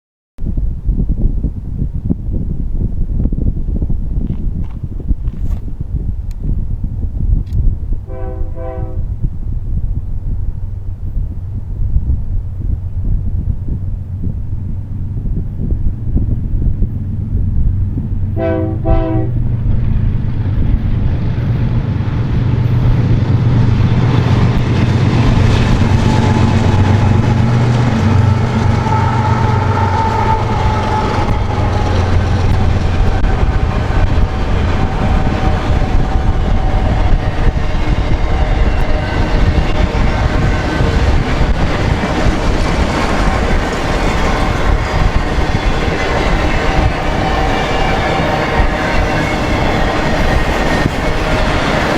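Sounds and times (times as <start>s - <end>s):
locomotives rumbling past: 1.0s - 51.9s
train horn blast: 8.1s - 9.3s, 18.3s - 19.6s, 23.7s - 51.9s
train wheels clickety-clack: 19.3s - 51.9s
wheels squealing: 20.7s - 51.9s.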